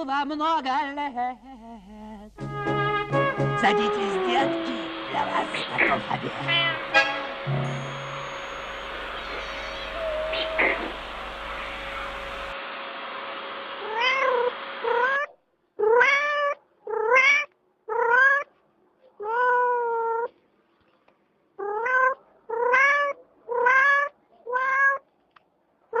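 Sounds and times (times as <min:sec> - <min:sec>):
cat meowing: 0:06.4 - 0:12.6, 0:13.8 - 0:18.5, 0:19.2 - 0:20.3, 0:21.6 - 0:25.0.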